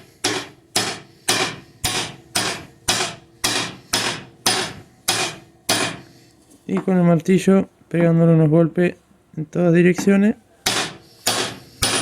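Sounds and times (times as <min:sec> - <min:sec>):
hammer tapping metal: 0:00.0 - 0:06.1, 0:10.0 - 0:12.0.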